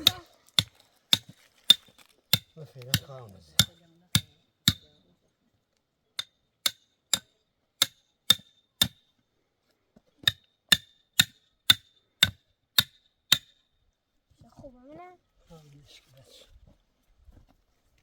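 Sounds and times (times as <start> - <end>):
tent peg being hammered: 0.0 - 4.9, 6.2 - 9.1, 10.2 - 13.6.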